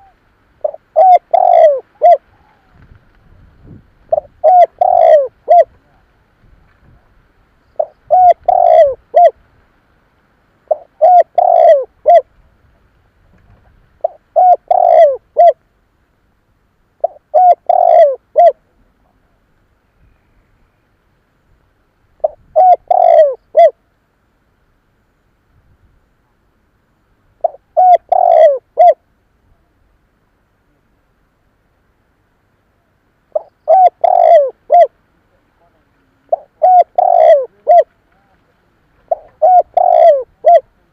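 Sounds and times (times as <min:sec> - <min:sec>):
dove cooing: 0:00.0 - 0:03.0, 0:03.7 - 0:06.0, 0:07.7 - 0:09.4, 0:10.7 - 0:12.3, 0:14.0 - 0:15.6, 0:17.0 - 0:19.2, 0:22.2 - 0:23.8, 0:27.4 - 0:29.0, 0:33.3 - 0:35.0, 0:35.6 - 0:40.9.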